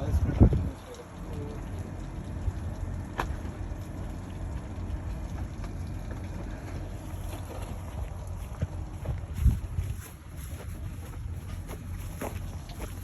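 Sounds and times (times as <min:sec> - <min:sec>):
wind buffeting microphone: 0:00.0 - 0:01.0, 0:07.3 - 0:13.0.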